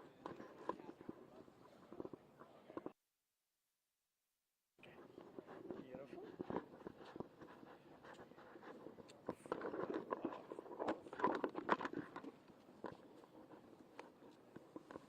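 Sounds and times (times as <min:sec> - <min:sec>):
microphone being handled: 0:05.0 - 0:15.0.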